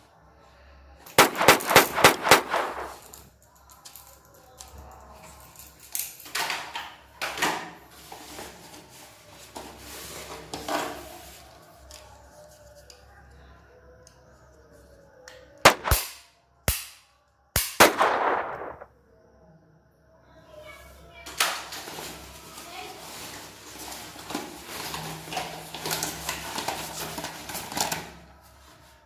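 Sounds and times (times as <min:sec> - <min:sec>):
gunshots: 0:01.2 - 0:03.1, 0:15.7 - 0:16.9, 0:17.6 - 0:18.9.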